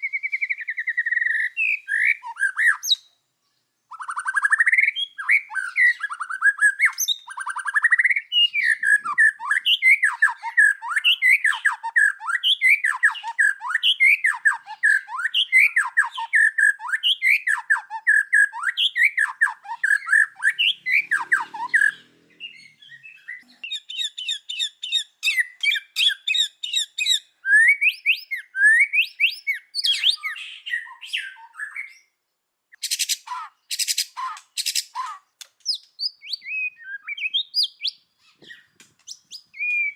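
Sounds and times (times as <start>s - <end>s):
bird singing whistled notes: 0.0s - 3.2s, 3.9s - 39.9s
sharp clicks: 34.3s - 36.0s.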